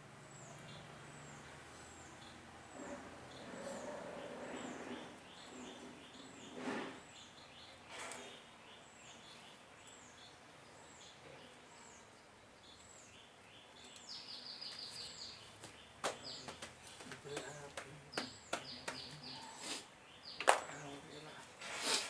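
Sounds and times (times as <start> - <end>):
small bird calling: 12.8 - 21.3.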